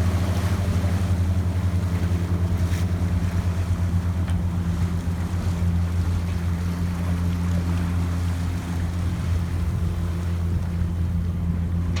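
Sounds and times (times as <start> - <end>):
boat engine droning: 0.0 - 12.0
wind: 0.0 - 12.0
water noise: 9.2 - 12.0.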